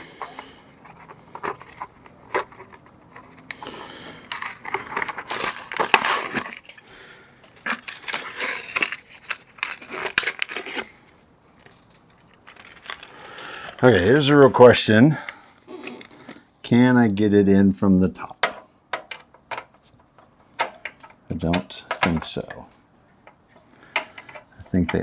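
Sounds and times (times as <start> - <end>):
small metal parts clicking and clinking: 0.0 - 6.8, 7.6 - 10.9, 11.6 - 13.8, 23.2 - 25.0
rustling and scraping: 0.0 - 6.9, 7.5 - 14.8, 15.6 - 16.6.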